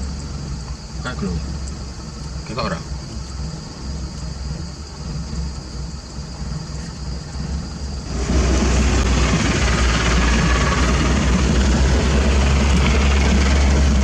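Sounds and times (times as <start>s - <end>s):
construction machinery humming: 0.0s - 14.0s
loud rushing noise: 8.0s - 14.0s.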